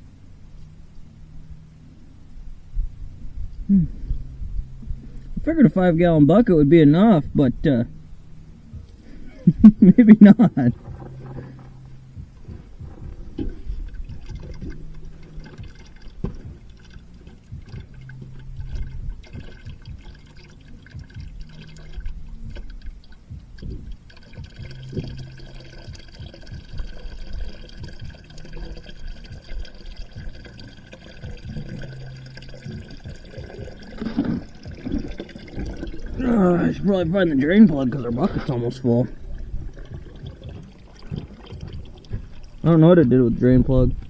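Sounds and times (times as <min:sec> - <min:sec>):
water pouring into a bucket: 0:10.2 - 0:44.0.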